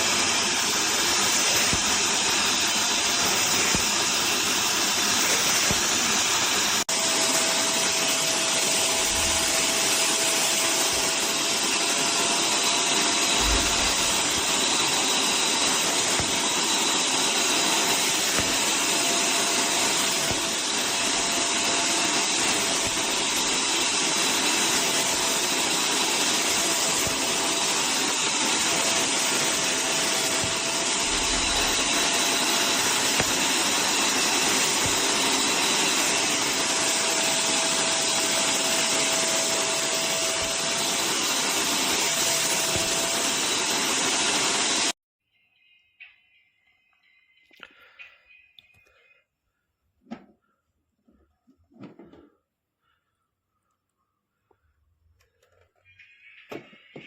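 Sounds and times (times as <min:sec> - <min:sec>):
wet vacuum motor whining: 0:00.0 - 0:45.0.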